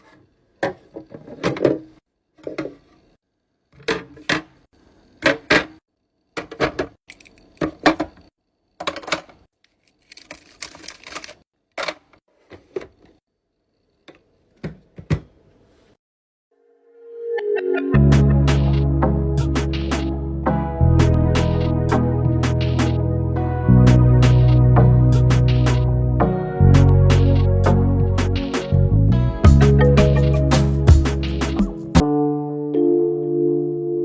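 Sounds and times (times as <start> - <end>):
musical tone: 16.7 - 25.3, 25.9 - 34.0.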